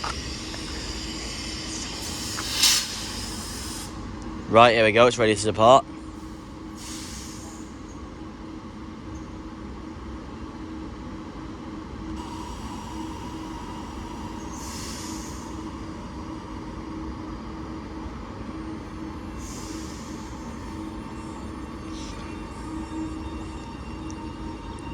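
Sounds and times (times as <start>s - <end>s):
air hisses: 0.0s - 4.4s, 6.2s - 7.8s, 12.2s - 16.9s, 18.6s - 24.7s
electric train equipment humming: 0.0s - 24.9s
higher hum: 12.2s - 24.9s.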